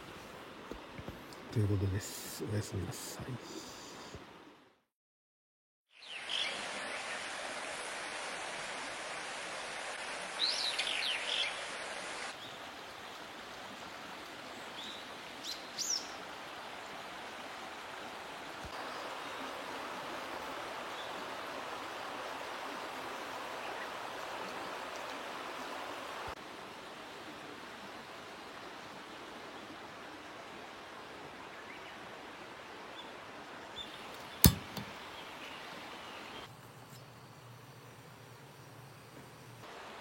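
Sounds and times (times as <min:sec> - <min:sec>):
rushing water: 0:06.0 - 0:36.5, 0:39.6 - 0:40.0.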